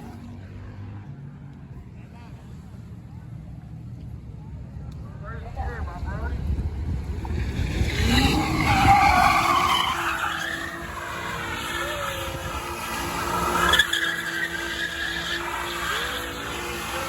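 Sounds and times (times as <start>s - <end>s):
car engine revving: 6.2s - 17.0s
tyres screeching on pavement: 7.5s - 17.0s.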